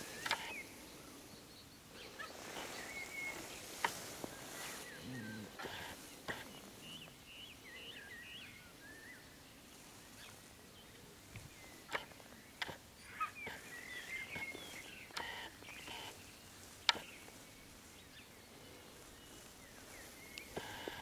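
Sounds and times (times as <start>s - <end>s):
songbirds chirping: 0.0s - 21.0s
sharp clicks: 0.2s - 0.6s.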